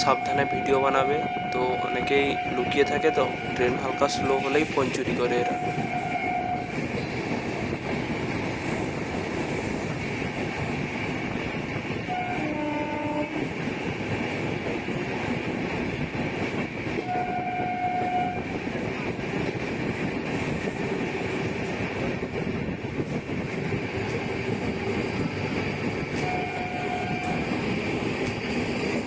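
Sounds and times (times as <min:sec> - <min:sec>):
train horn tones: 0:00.0 - 0:04.7, 0:05.3 - 0:06.8, 0:12.0 - 0:13.5, 0:17.0 - 0:18.5, 0:26.1 - 0:27.5
train wheels on rails: 0:00.0 - 0:29.0.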